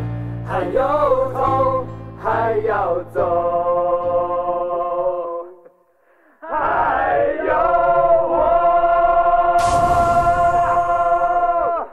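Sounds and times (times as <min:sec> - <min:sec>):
musical accompaniment: 0:00.0 - 0:04.4
men singing together: 0:00.5 - 0:05.5, 0:06.4 - 0:11.8
cymbal crash: 0:09.6 - 0:11.4.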